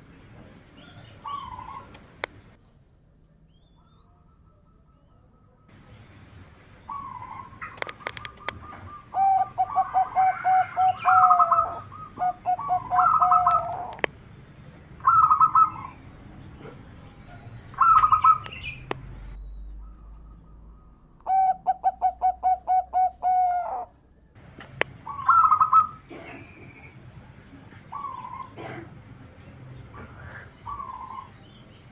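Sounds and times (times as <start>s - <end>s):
dove cooing: 0.8s - 2.2s, 6.8s - 14.1s, 15.0s - 16.0s, 17.8s - 18.8s, 19.8s - 23.9s, 25.0s - 26.9s, 27.8s - 29.0s, 30.0s - 31.3s.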